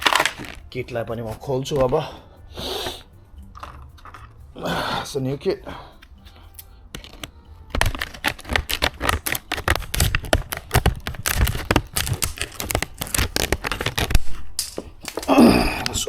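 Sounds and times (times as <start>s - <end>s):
packaging crackling and clicking: 0.0s - 2.1s, 6.0s - 16.0s.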